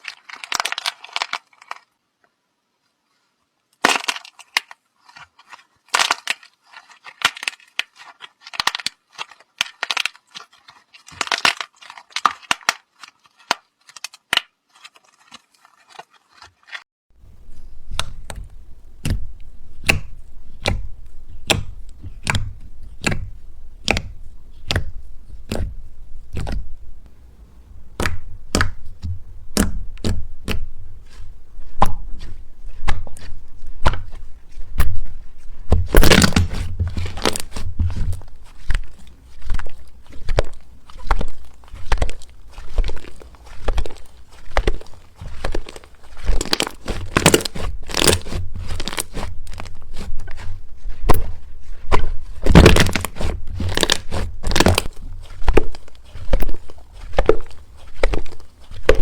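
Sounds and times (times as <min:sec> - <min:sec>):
sharp cracks and crunches: 0:00.0 - 0:02.0, 0:03.8 - 0:16.8, 0:28.0 - 0:59.0.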